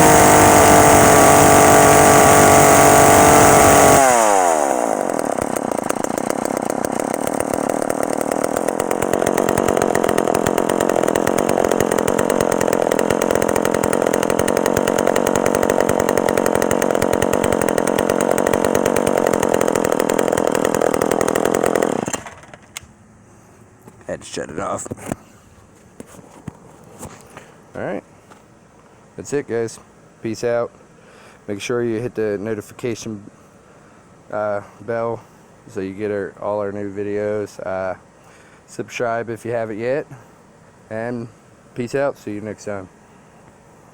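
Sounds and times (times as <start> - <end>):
two-stroke chainsaw revving and idling: 0.0 - 22.6.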